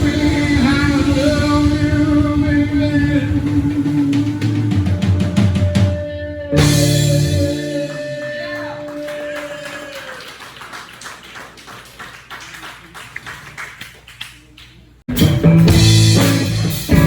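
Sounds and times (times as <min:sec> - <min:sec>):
rock band closing chord: 0:00.0 - 0:09.8, 0:15.1 - 0:17.0
crowd noise: 0:00.0 - 0:17.0
people clapping: 0:07.5 - 0:15.0.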